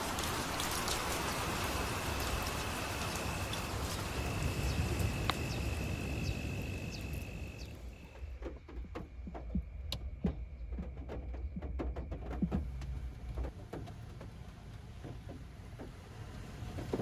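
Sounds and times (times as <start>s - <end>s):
water drips: 0.0s - 8.2s
rain patter: 0.0s - 9.6s.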